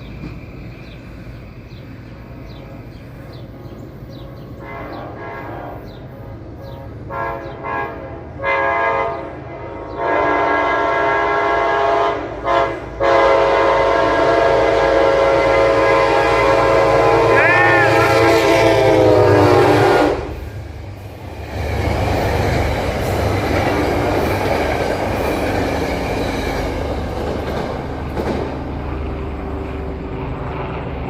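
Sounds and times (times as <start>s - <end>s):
train rumble: 0.0s - 31.0s
train horn blasts: 4.6s - 6.0s, 6.6s - 20.5s.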